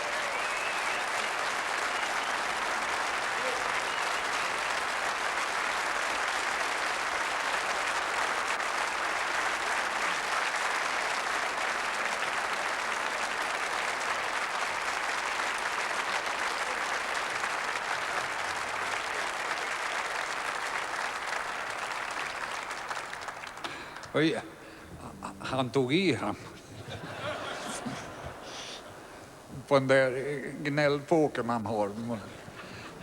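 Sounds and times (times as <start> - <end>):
audience applauding: 0.0 - 24.3.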